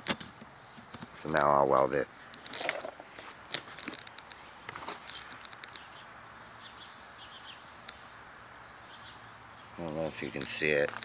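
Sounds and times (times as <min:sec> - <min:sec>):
birds chirping: 0:00.5 - 0:11.0
sharp clicks and knocks: 0:10.3 - 0:11.0.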